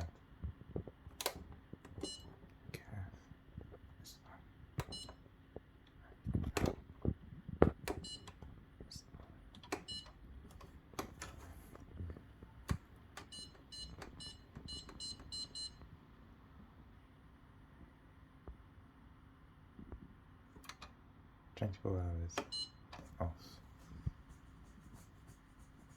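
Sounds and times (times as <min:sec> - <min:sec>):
dishwasher panel beeping: 0:01.2 - 0:02.3, 0:09.6 - 0:11.4, 0:12.6 - 0:15.8.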